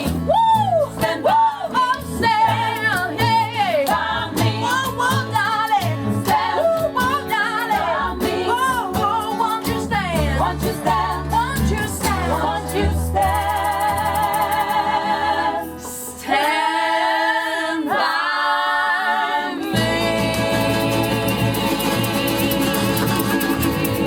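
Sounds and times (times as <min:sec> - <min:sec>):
band backing: 0:00.0 - 0:16.7, 0:19.3 - 0:24.0
vocal group singing harmony: 0:00.0 - 0:24.0.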